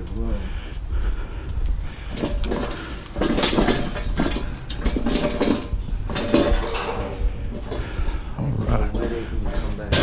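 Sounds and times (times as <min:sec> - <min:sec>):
metal rattling and clattering: 0:01.9 - 0:10.0.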